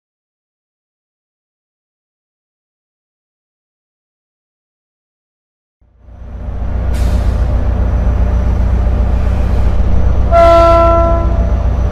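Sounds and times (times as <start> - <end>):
train rumbling: 5.8 - 11.9.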